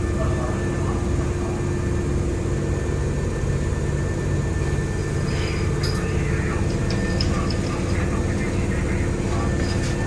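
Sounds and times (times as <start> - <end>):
constant hum: 0.0 - 10.0.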